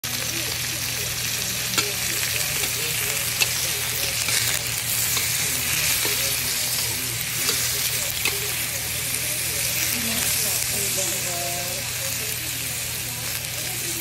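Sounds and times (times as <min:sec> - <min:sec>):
prawns sizzling in hot oil: 0:00.0 - 0:14.0
metal spatula scraping wok: 0:02.3 - 0:08.7.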